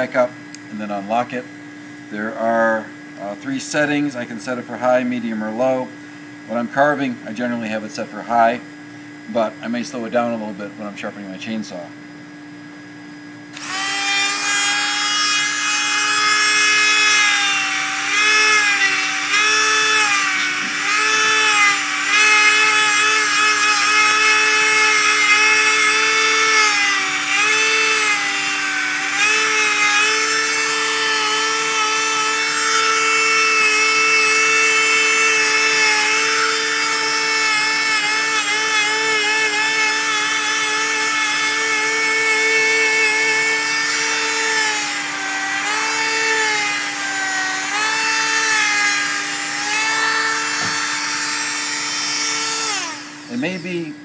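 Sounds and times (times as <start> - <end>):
die grinder high whine: 0.0 - 1.4, 13.5 - 54.0.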